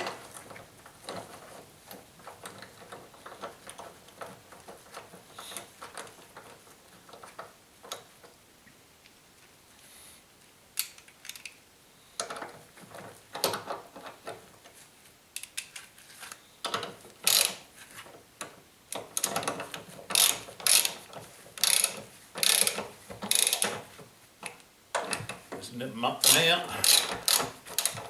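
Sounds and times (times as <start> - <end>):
ratchet wrench clicking: 17.2 - 17.6, 20.1 - 21.0, 21.6 - 23.8, 26.2 - 28.0.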